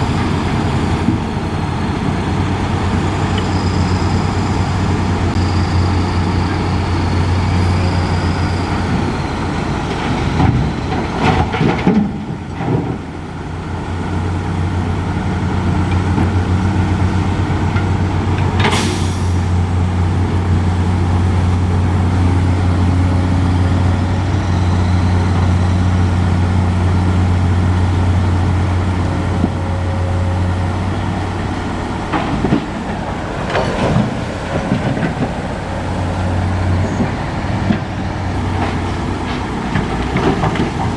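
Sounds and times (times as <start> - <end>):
diesel truck engine droning: 0.0 - 40.9.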